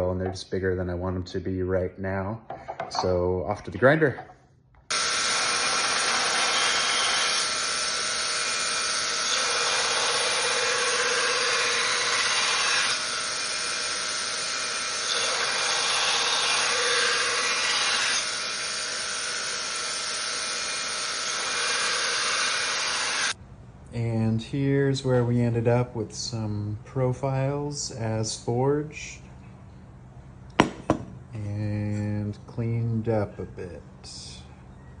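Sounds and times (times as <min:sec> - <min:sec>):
belt grinder grinding steel: 0:04.9 - 0:23.4.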